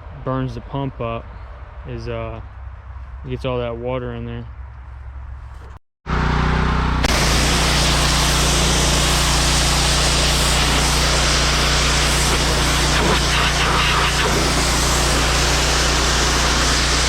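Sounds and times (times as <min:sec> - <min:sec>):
engine running: 0:04.9 - 0:17.0
high-pressure water jet hissing: 0:07.0 - 0:17.0.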